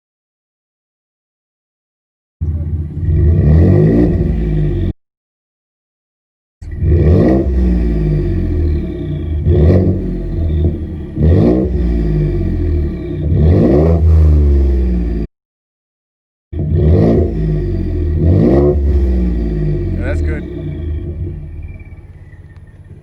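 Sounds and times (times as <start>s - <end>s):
car engine idling and revving: 2.4s - 5.0s, 6.6s - 15.3s, 16.6s - 23.0s.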